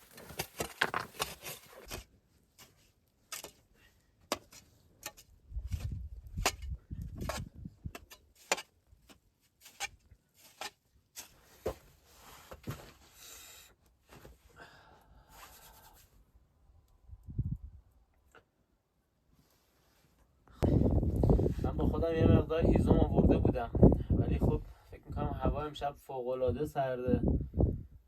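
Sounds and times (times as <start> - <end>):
handling knocks and clicks: 0.0 - 2.0.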